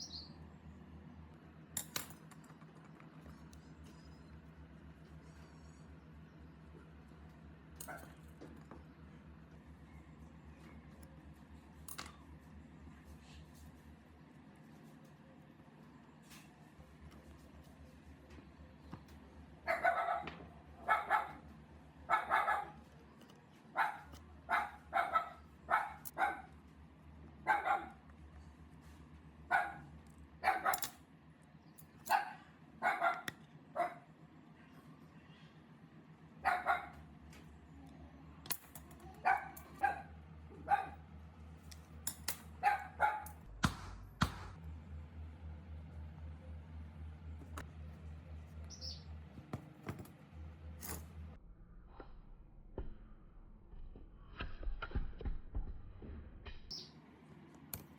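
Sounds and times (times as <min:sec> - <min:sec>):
dog barking: 0:19.6 - 0:22.9, 0:23.7 - 0:26.5, 0:27.4 - 0:28.0, 0:29.5 - 0:30.9, 0:32.1 - 0:34.1, 0:36.4 - 0:37.0, 0:39.1 - 0:41.0, 0:42.6 - 0:43.5.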